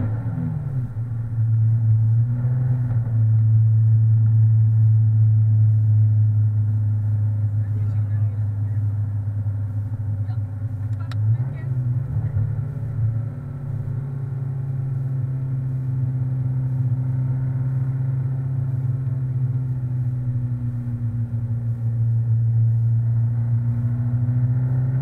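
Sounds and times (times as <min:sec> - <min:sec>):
engine running at low revs: 0:00.0 - 0:25.0.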